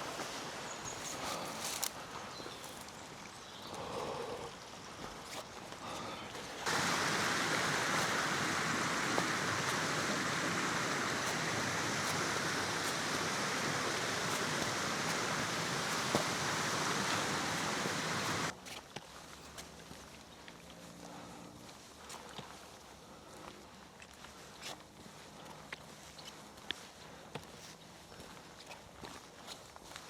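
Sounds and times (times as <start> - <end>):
heavy hail falling: 6.7 - 18.5.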